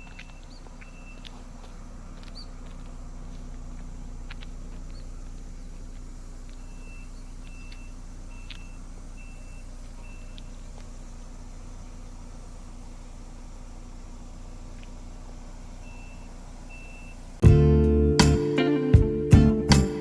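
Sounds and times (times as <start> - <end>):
reversing alarm beeping: 0.0 - 1.4, 6.5 - 10.6, 15.7 - 17.3
vehicle engine humming: 0.0 - 20.0.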